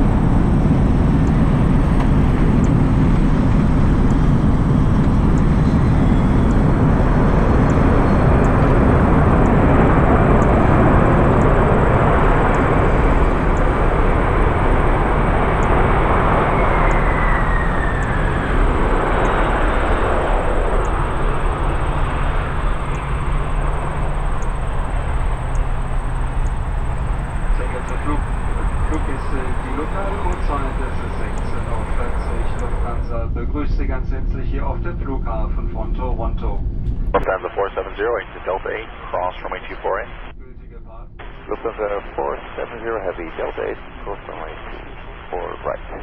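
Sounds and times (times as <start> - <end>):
falling whine: 0.0 - 33.2
jet engines running loud: 0.0 - 33.4.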